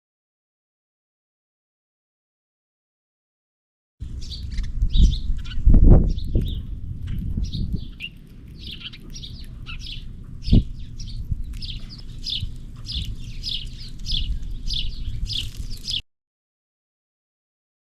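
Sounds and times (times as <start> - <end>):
low rumble: 4.0 - 16.0
small birds chirping: 4.0 - 16.0.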